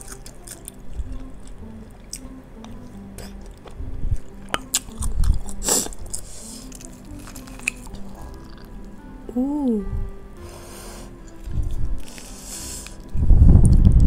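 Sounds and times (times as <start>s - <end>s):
chewing and biting: 0.0s - 8.9s
faint background music: 0.0s - 14.0s
slurp of broth: 5.6s - 6.7s.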